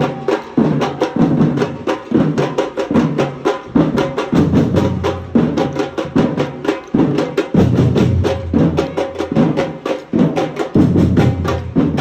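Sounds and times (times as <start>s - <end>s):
group of drummers playing: 0.0s - 12.0s.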